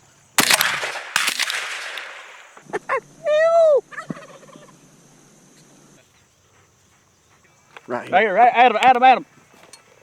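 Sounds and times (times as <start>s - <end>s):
shotgun shots echoing: 0.4s - 2.6s.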